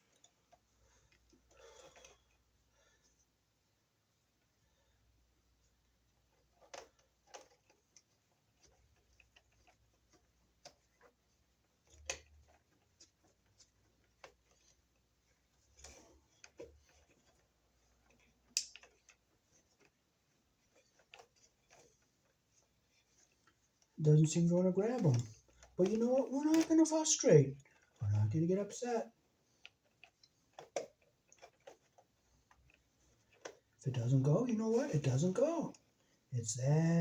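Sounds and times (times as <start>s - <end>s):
wire nut clicking and scraping: 6.3s - 20.0s, 20.6s - 28.9s, 29.5s - 35.6s.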